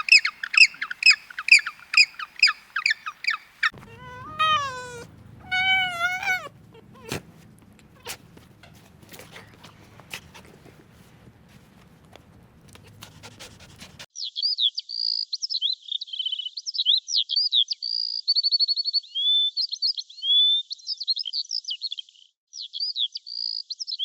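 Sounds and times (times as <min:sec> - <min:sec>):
songbird singing: 0:00.0 - 0:07.1.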